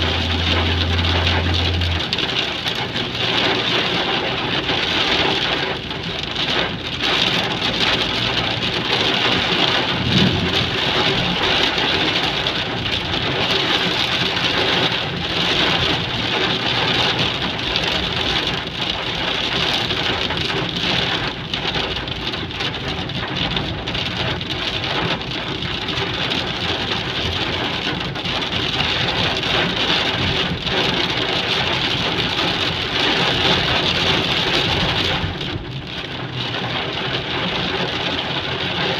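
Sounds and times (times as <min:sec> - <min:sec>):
heavy rain pattering: 0:00.0 - 0:38.9.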